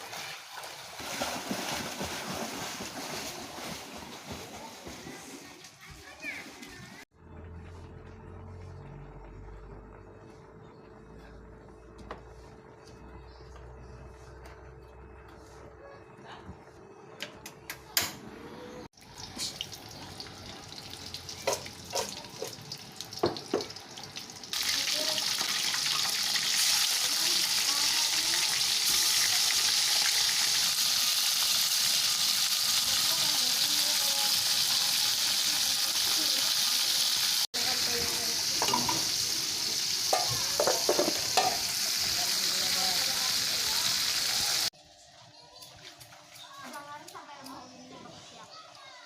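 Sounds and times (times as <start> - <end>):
food sizzling in hot oil: 19.0 - 44.7
cookware clicks and knocks: 38.6 - 39.1, 40.2 - 41.6
utensil clinking against pan: 40.1 - 41.6.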